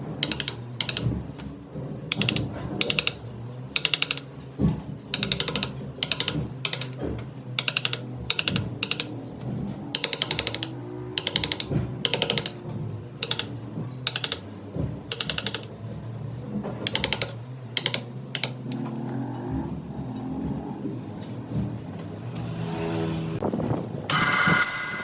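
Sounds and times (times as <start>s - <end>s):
turning tool clicking on wood: 0.0s - 16.0s, 16.6s - 19.2s.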